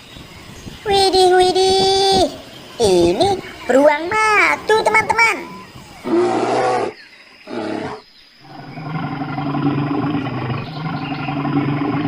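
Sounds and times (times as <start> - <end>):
bear growling and roaring: 5.5 - 12.0.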